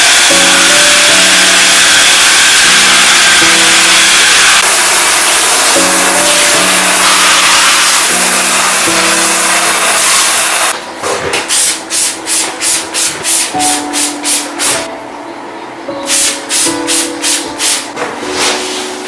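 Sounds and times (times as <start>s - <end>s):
rushing hiss: 0.0s - 10.7s.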